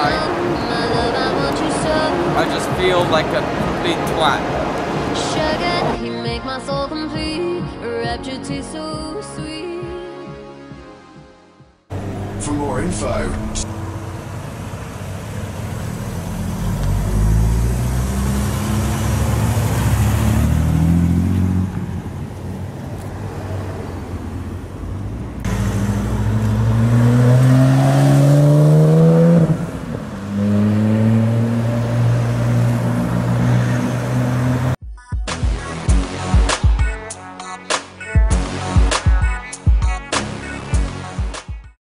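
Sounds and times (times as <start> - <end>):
go-kart engines revving: 11.9 - 22.3, 23.0 - 34.8.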